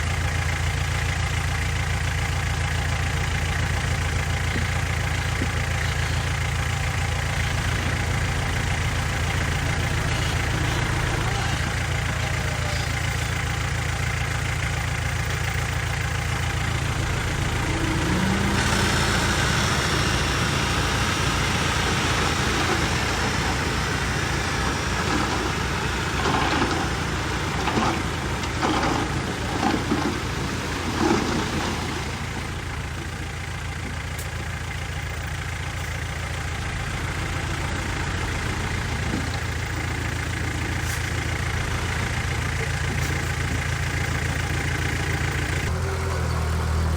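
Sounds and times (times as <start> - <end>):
heavy diesel engine running: 0.0 - 46.9.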